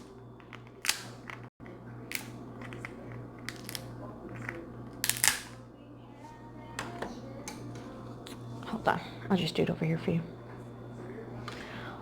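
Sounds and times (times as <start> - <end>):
crab legs cracking: 4.5 - 5.6.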